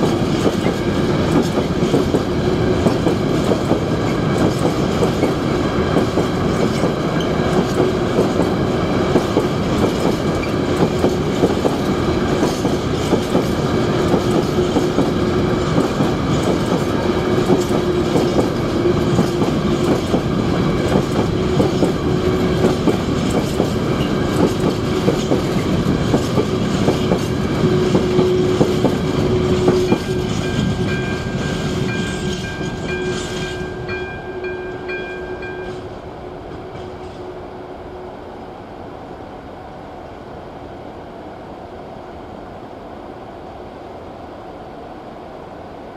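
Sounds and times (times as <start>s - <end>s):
train wheels clattering over rails: 0.0s - 33.9s.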